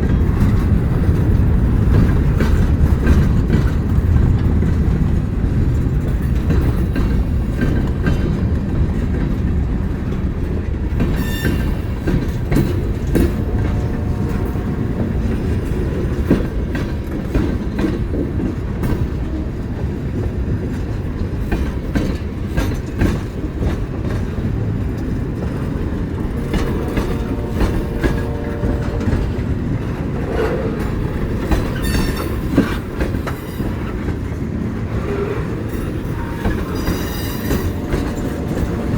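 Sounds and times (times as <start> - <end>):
train rumbling past: 0.0 - 38.9
wheels clicking over rail joints: 0.0 - 38.9
wheel squeals: 11.2 - 11.9, 31.7 - 32.7, 35.1 - 38.4.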